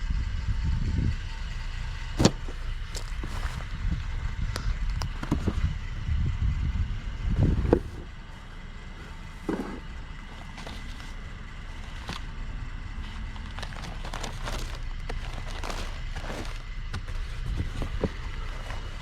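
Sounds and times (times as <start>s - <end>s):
steady low rumble: 0.0s - 19.0s
objects clicking and rustling: 9.0s - 12.3s, 13.1s - 19.0s.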